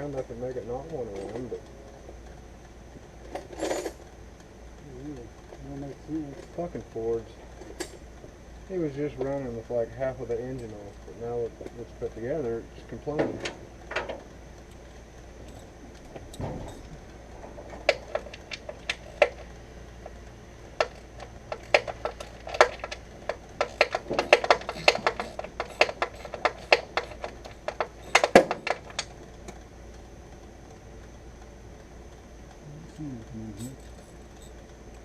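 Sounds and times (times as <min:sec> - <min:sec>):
hand tools clinking: 0:15.4 - 0:29.2, 0:32.9 - 0:34.6.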